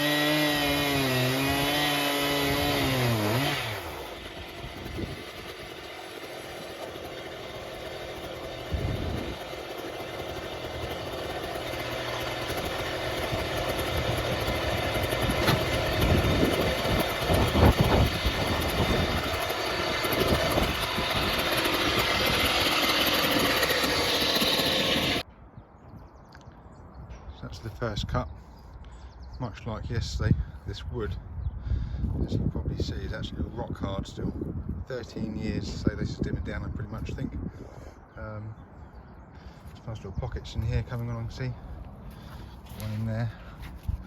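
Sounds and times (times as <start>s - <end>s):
chainsaw engine: 0.0s - 25.2s, 40.9s - 43.8s
knocks and rattles: 4.6s - 25.2s.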